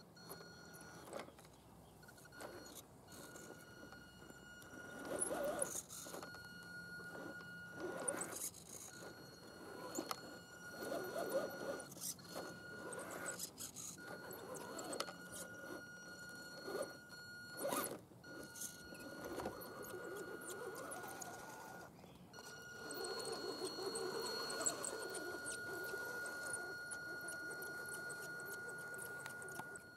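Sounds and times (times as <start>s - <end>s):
electric motor high whine: 2.2s - 29.9s.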